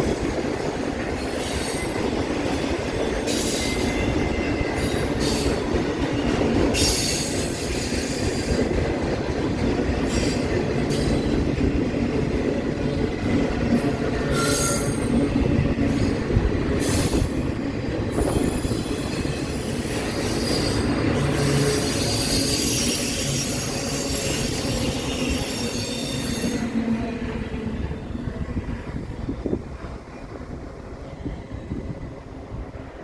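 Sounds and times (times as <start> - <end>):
train wheels rumbling on rail: 0.0 - 33.0
high-pitched wheel squeal: 14.2 - 15.1.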